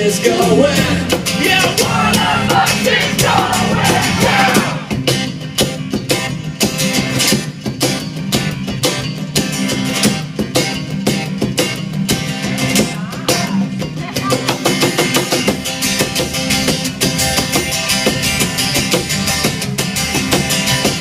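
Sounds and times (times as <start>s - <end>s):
strummed acoustic guitars: 0.0s - 21.0s
drum hits: 0.8s - 9.0s.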